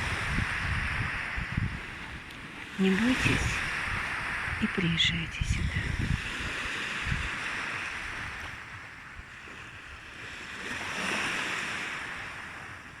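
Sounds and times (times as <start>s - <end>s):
sea waves washing in: 0.0s - 13.0s.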